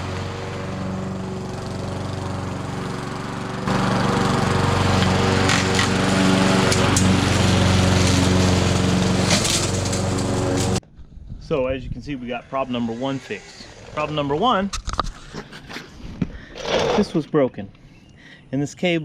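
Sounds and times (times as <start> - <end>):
lawn mower engine running: 0.0 - 10.8.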